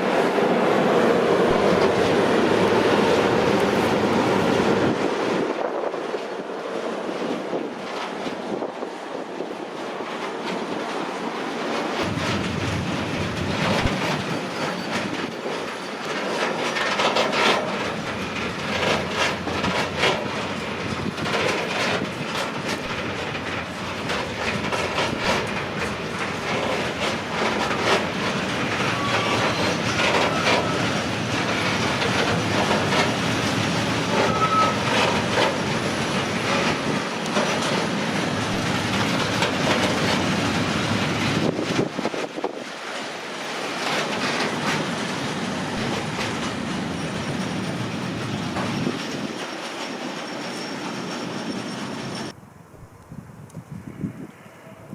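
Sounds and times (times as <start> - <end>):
wheels clattering over rail joints: 0.0 - 52.4
high wheel squeals: 28.6 - 32.8, 33.9 - 37.0, 46.5 - 52.4.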